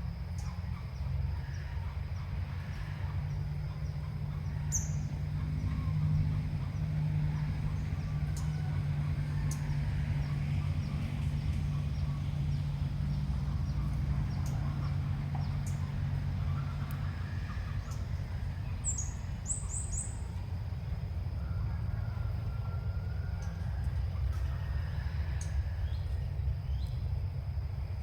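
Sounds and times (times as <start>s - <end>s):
steady low rumble: 0.0s - 28.0s
bird chirps: 13.5s - 20.4s.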